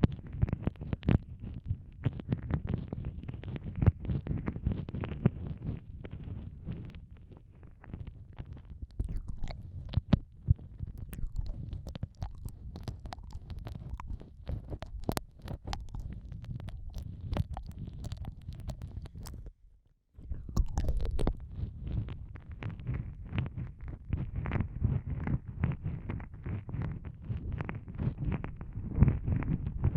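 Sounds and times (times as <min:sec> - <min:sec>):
sharp wet clicks: 0:08.6 - 0:19.5, 0:20.4 - 0:21.6
wet mouth licking sounds: 0:08.9 - 0:10.0, 0:10.8 - 0:19.5, 0:20.4 - 0:21.6
low muffled rumble: 0:20.2 - 0:29.9.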